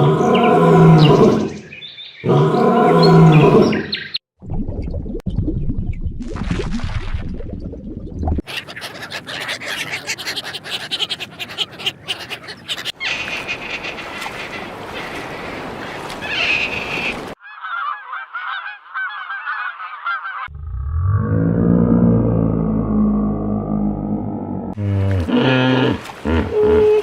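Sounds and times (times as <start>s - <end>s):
waterfowl honking and calling: 8.4s - 20.5s.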